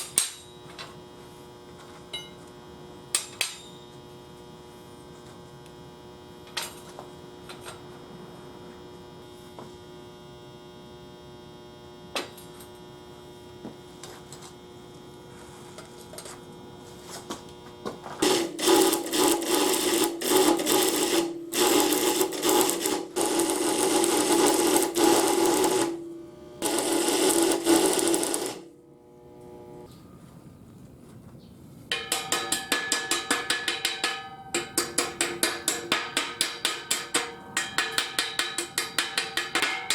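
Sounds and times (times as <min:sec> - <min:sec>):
electric power tool motor: 0:13.8 - 0:29.9.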